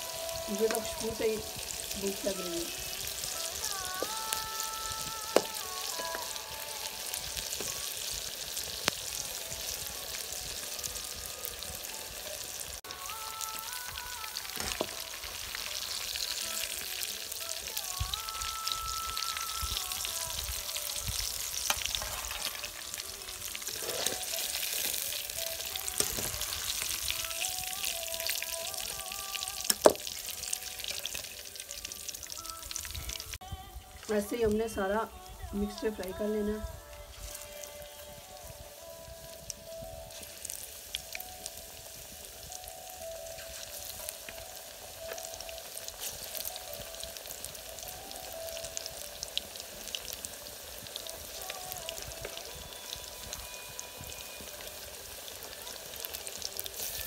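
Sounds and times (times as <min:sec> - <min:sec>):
deep-frying sizzle: 0:00.0 - 0:35.0, 0:35.6 - 0:57.0.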